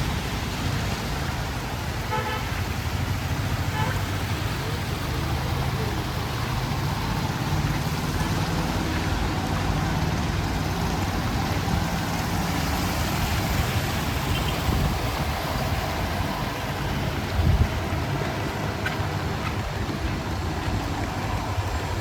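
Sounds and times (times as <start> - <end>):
street traffic noise: 0.0 - 22.0.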